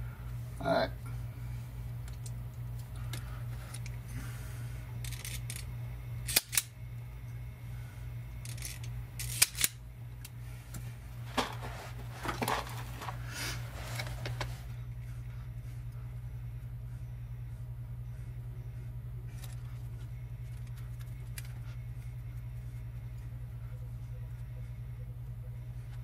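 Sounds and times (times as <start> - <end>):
steady low hum: 0.0 - 26.0
hand tools snipping and clicking: 6.3 - 6.7
soft rustling handling: 10.7 - 14.7.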